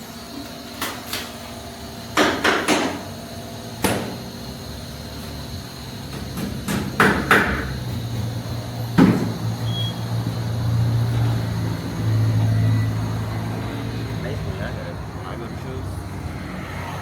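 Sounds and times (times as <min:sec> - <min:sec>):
sharp knocks and clanks: 0:02.1 - 0:03.1, 0:03.8 - 0:04.2, 0:06.1 - 0:09.5
vehicle engine humming: 0:03.0 - 0:17.0.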